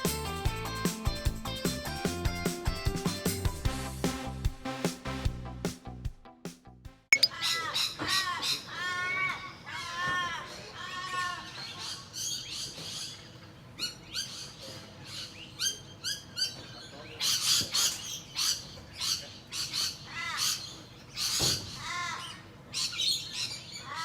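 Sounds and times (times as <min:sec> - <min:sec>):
harsh bird squawks: 0:07.2 - 0:24.0.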